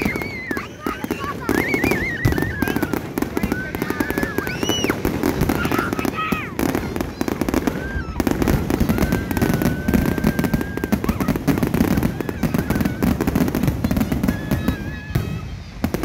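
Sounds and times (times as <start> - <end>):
fireworks bangs and crackling: 0.0 - 16.0
high firework whistle: 0.0 - 16.0.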